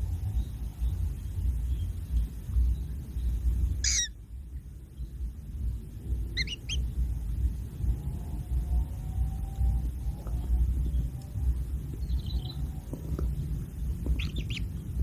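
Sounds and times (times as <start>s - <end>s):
bird calls: 0.0s - 4.2s, 6.3s - 7.0s, 10.1s - 14.9s
low rumble: 0.0s - 15.0s.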